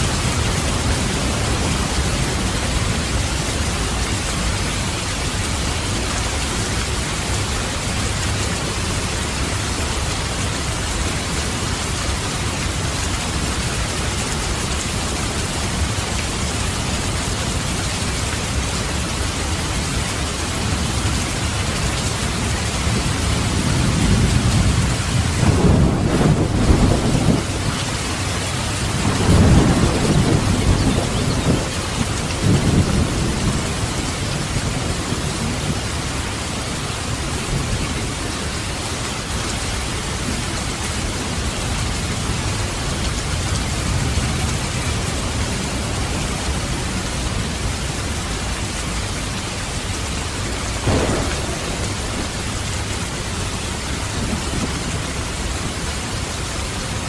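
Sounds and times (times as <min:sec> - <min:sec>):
steady rain: 0:00.0 - 0:57.0
thunder rolling: 0:23.5 - 0:28.0, 0:28.8 - 0:35.8, 0:50.7 - 0:53.3.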